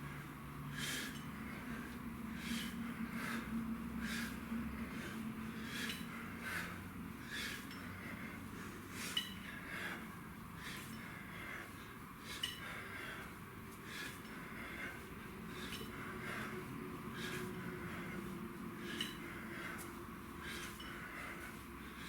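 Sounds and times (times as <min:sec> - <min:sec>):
sharp rhythmic breaths: 0:00.0 - 0:22.0.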